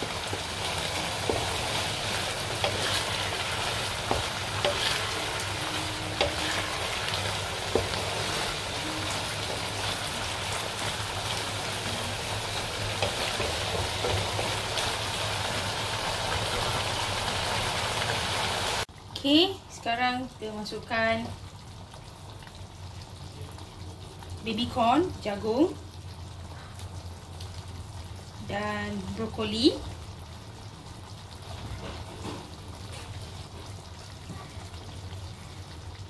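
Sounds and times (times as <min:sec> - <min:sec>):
spatula scraping a pan: 0:00.0 - 0:11.2
chicken sizzling in a pan: 0:00.0 - 0:36.0.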